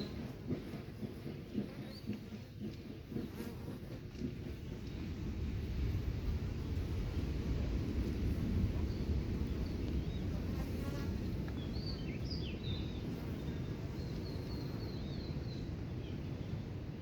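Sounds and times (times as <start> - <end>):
small birds chirping: 0.0 - 3.6, 8.7 - 16.6
steady low rumble: 4.1 - 17.0.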